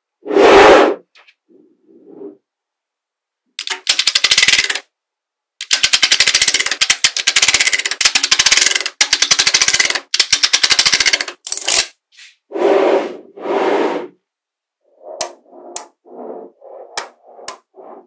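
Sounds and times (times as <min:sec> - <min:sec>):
magnetic balls clicking: 0:03.6 - 0:04.9, 0:05.6 - 0:11.8.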